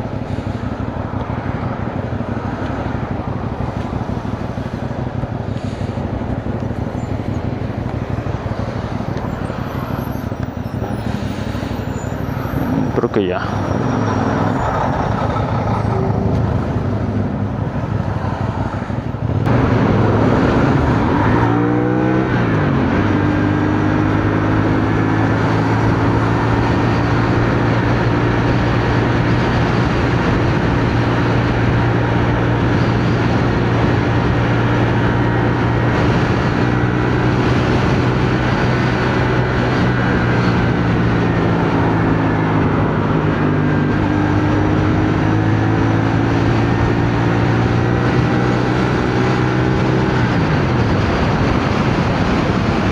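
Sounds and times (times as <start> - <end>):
motorcycle engine running: 0.0 - 12.0
wind on microphone: 0.0 - 52.9.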